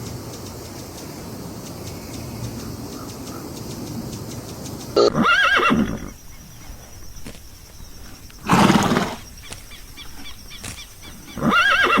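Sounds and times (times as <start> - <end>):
horse snorting: 8.4 - 9.3.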